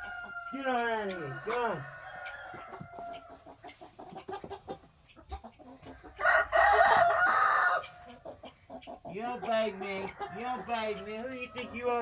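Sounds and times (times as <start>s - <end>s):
chickens clucking: 0.0s - 12.0s
rooster crowing: 6.2s - 7.9s.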